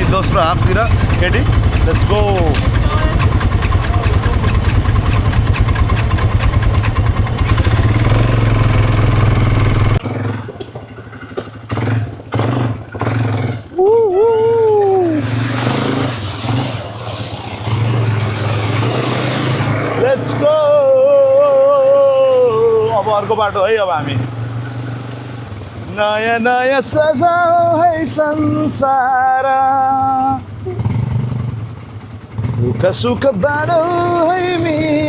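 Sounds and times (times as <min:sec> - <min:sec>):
quad bike engine running: 0:00.0 - 0:35.0
person calling out: 0:13.8 - 0:15.3.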